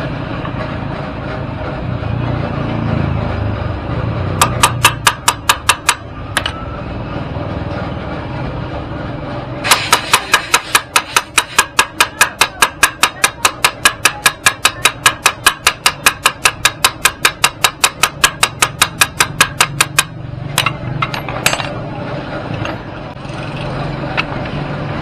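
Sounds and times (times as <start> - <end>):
hammer striking metal: 4.2 - 6.6, 9.6 - 21.8.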